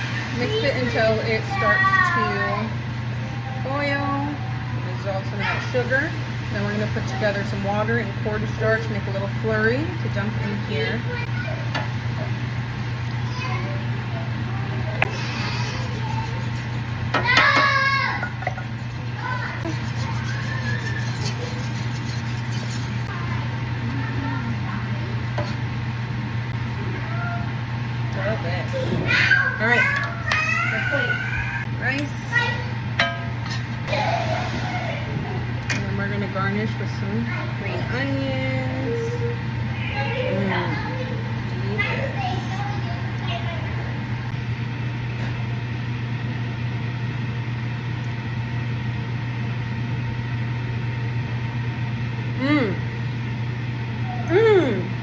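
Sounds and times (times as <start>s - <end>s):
steady low hum: 0.0s - 55.0s
faint children's voices: 11.0s - 21.7s
utensils in a pan: 15.0s - 23.4s.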